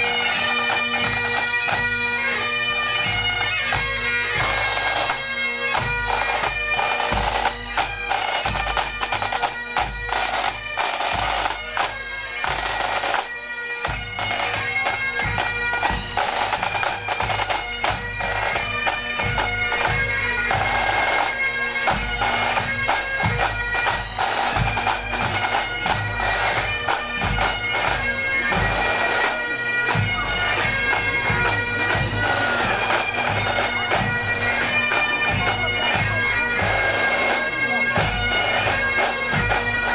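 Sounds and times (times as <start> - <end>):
bagpipes playing a march: 0.0 - 39.9
drums beating time: 21.8 - 39.9.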